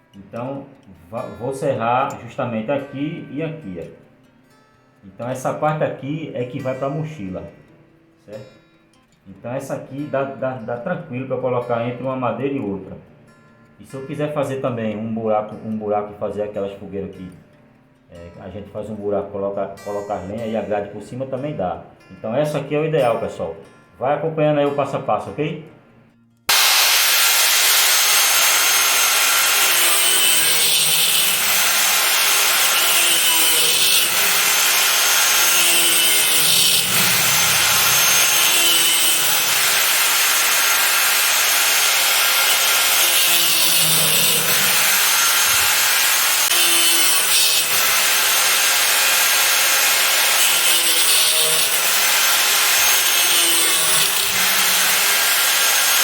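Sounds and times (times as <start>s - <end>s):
saw cutting steel rods: 26.5s - 56.0s.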